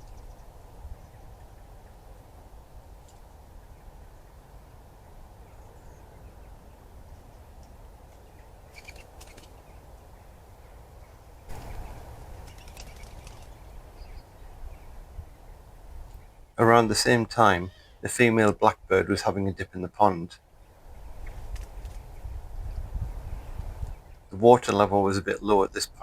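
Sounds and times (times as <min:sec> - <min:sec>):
faint bird chirps: 0:03.6 - 0:09.9, 0:10.6 - 0:16.6, 0:17.6 - 0:18.1
low hiss and rumble: 0:09.6 - 0:26.0
rustling: 0:11.5 - 0:14.0.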